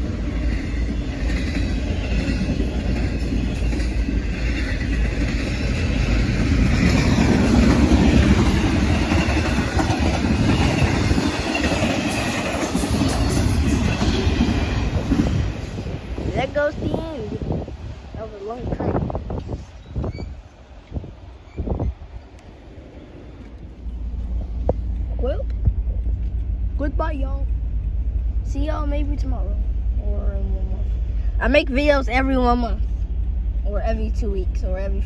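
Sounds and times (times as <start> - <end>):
wheels clicking over track: 0.0 - 15.6
freight train rumbling past: 0.0 - 35.0.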